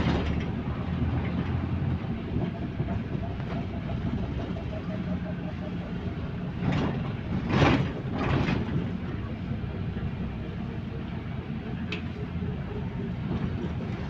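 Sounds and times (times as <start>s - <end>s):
bus engine rumble: 0.0s - 14.0s.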